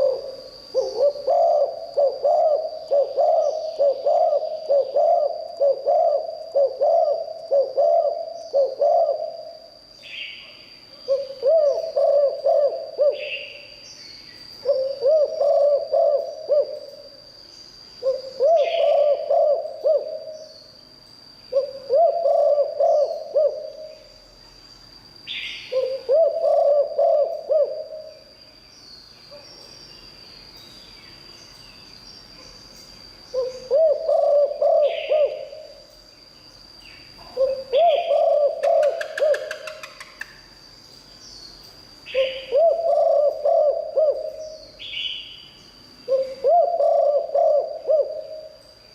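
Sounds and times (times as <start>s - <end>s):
dove cooing: 0.0s - 9.7s, 11.1s - 13.7s, 14.6s - 17.1s, 18.0s - 20.5s, 21.5s - 24.1s, 25.7s - 28.2s, 33.3s - 35.8s, 37.2s - 40.2s, 42.1s - 45.0s, 46.0s - 48.6s
bird chirps: 25.2s - 48.7s.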